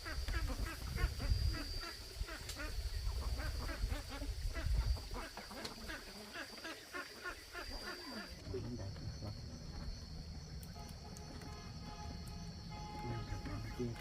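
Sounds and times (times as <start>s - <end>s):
animals calling rapidly: 0.0s - 9.8s.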